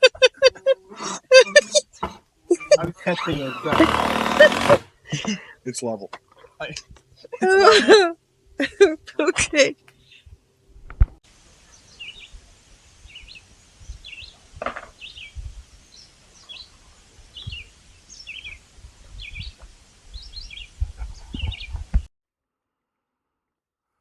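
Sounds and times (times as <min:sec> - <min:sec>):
songbird chirping: 0:09.8 - 0:10.4, 0:11.5 - 0:21.8.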